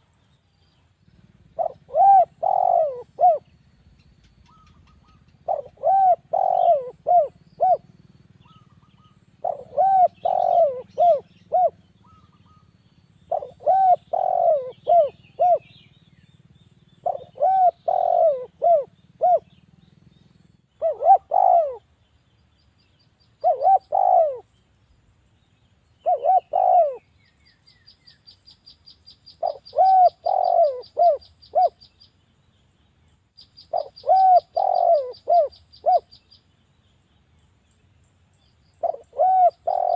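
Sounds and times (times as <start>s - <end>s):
dove cooing: 1.1s - 3.6s, 4.2s - 12.7s, 13.3s - 15.9s, 17.0s - 19.6s, 20.8s - 21.9s, 23.4s - 24.5s, 26.0s - 27.2s, 29.4s - 31.9s, 33.7s - 36.2s, 38.8s - 39.9s.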